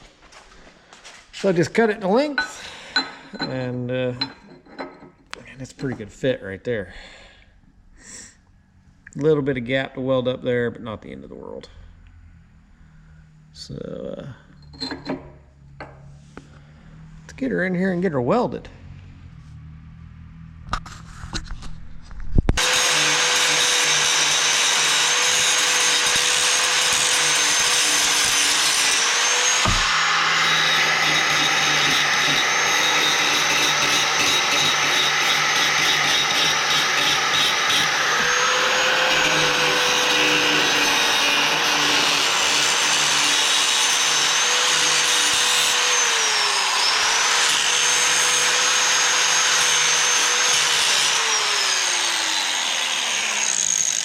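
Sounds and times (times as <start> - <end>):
angle grinder grinding steel: 2.0 - 6.1, 14.6 - 16.2, 22.6 - 54.0.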